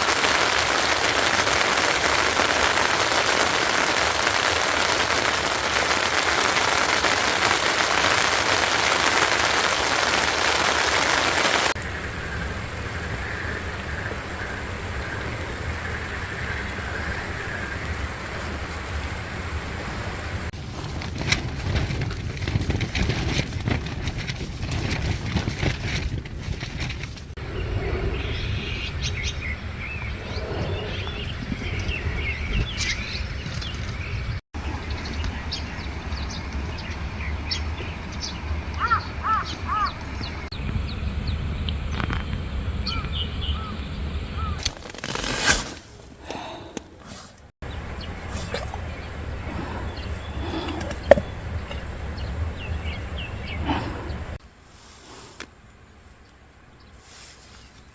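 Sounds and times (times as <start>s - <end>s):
loud rustle: 0.0s - 11.8s, 20.5s - 27.4s, 44.6s - 46.2s
raindrops tapping on a tarp: 0.0s - 11.8s, 20.5s - 27.3s
steady rain: 0.0s - 12.8s
birds chirping: 0.0s - 20.5s, 26.8s - 45.1s, 46.0s - 54.4s
wind rumbling: 0.0s - 54.5s.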